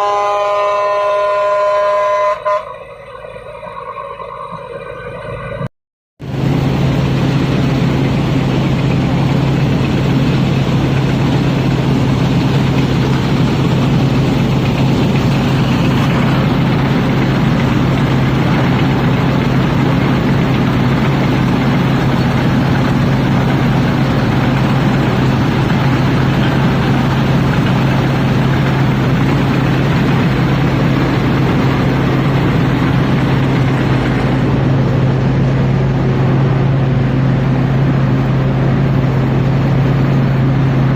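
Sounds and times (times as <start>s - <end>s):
harvester engine drone: 0.0s - 40.9s.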